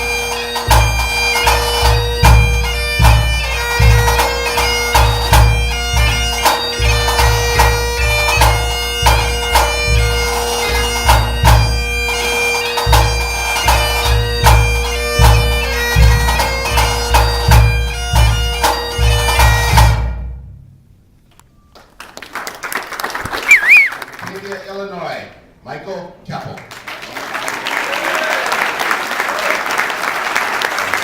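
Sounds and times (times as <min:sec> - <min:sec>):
bagpipes playing a tune: 0:00.0 - 0:19.8.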